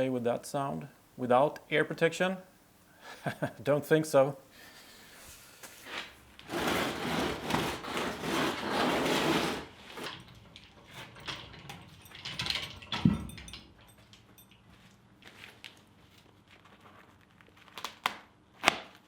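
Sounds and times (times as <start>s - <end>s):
rough scraping: 5.2s - 10.1s.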